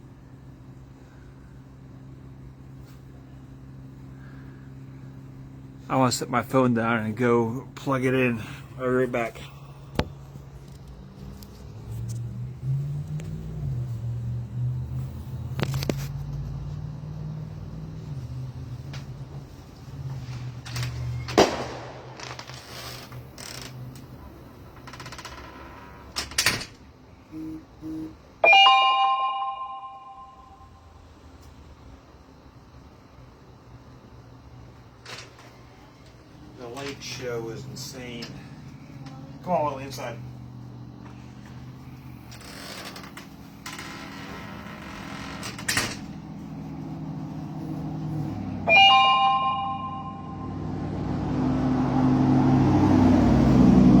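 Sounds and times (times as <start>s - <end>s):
steady low hum: 0.0s - 15.8s, 26.7s - 28.3s
door creaking and sliding: 20.1s - 21.5s, 22.1s - 26.8s, 41.5s - 48.4s
short low beeps: 27.3s - 30.7s, 48.7s - 50.6s
bright multi-pitch ringing tone: 27.4s - 30.9s, 48.6s - 50.7s
loud bell-like chime: 28.4s - 30.8s, 48.7s - 50.7s.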